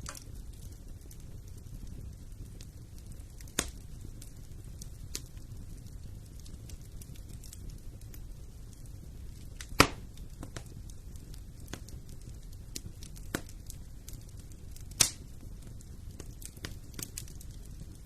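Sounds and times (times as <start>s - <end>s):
sharp pops from fire: 0.0s - 18.0s
wood fire crackling: 0.0s - 18.0s.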